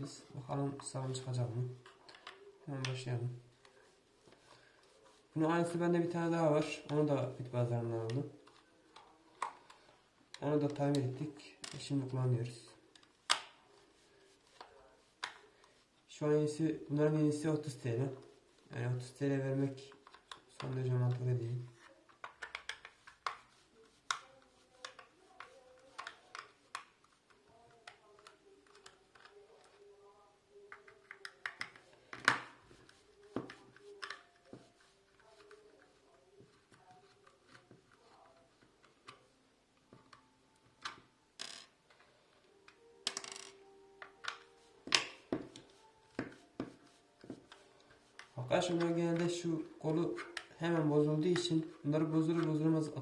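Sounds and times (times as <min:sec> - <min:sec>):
plastic and metal parts clicking: 0:19.9 - 0:23.5, 0:24.1 - 0:29.8, 0:30.7 - 0:32.6, 0:33.3 - 0:39.2.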